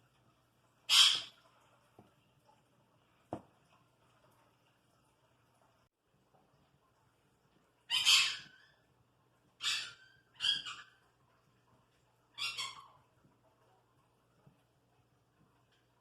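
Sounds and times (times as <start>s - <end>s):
parrot squawking: 0.9s - 1.3s, 7.9s - 8.8s, 9.6s - 11.0s, 12.3s - 13.0s.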